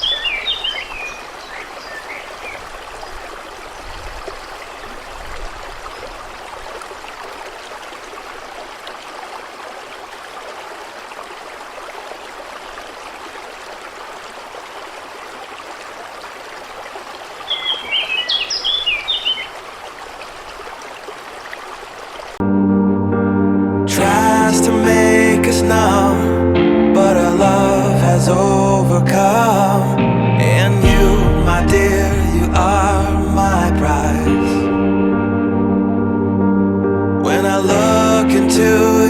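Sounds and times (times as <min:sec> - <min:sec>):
songbird chirping: 0:00.0 - 0:06.5, 0:17.4 - 0:20.8
stream flowing: 0:00.0 - 0:22.4.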